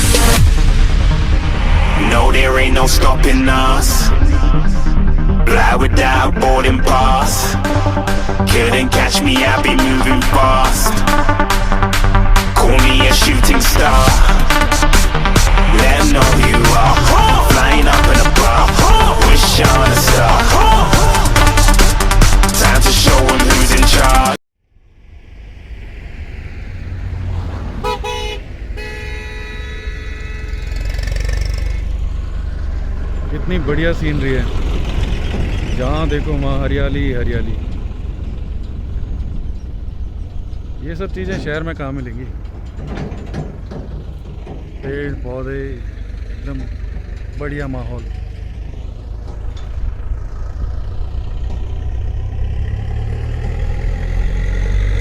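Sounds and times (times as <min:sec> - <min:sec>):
moving vehicle engine rumble: 0:00.0 - 0:55.0
road noise: 0:00.0 - 0:55.0
vehicle horn tooting: 0:27.6 - 0:31.6.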